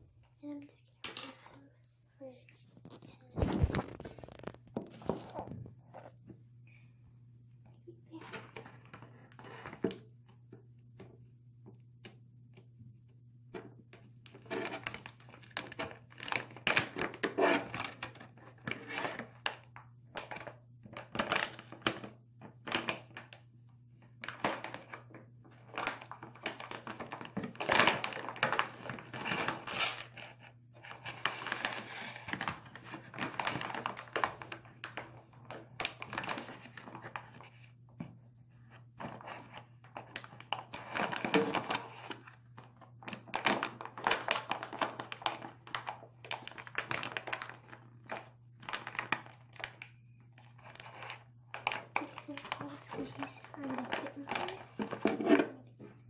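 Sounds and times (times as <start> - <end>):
plastic bag crinkling: 2.6 - 6.0, 24.2 - 37.7, 39.0 - 55.8.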